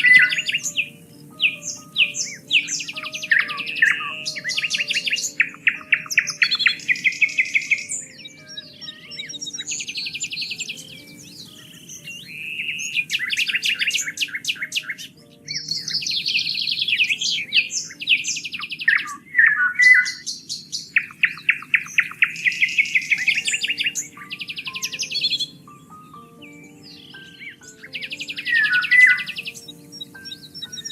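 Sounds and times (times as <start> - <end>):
songbirds singing: 0.0 - 30.9.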